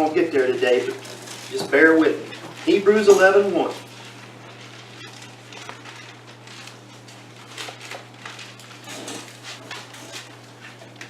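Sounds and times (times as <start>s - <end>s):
low electrical hum: 0.0s - 11.0s
thin pages rustling: 0.9s - 11.0s.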